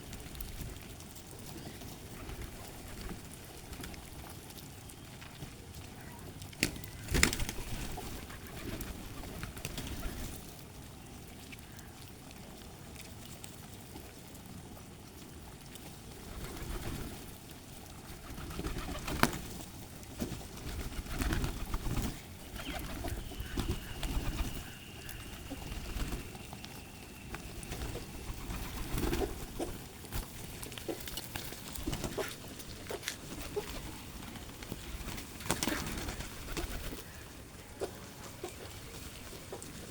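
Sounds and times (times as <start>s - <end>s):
pigeons cooing: 20.4s - 39.9s.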